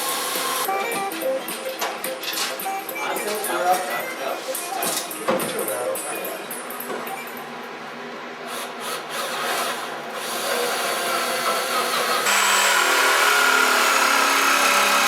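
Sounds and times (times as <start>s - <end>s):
general work noise: 0.5s - 15.0s
power tool motor running: 8.5s - 15.0s.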